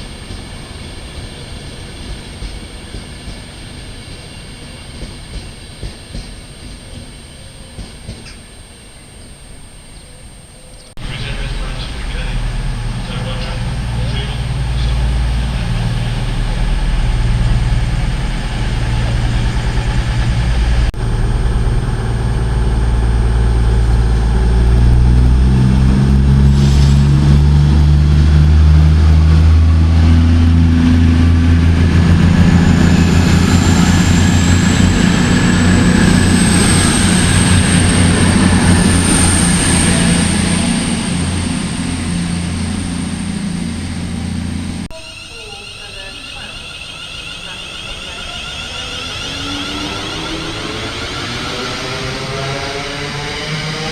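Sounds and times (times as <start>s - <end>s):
train engine accelerating: 0.0s - 9.9s, 11.0s - 53.9s
high rising whine: 11.0s - 53.9s.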